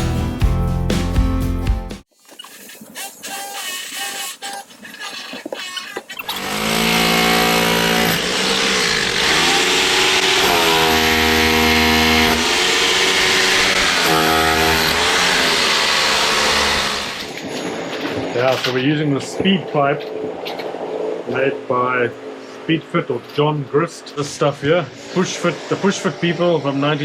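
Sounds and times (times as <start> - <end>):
loud motor running: 6.3 - 17.3.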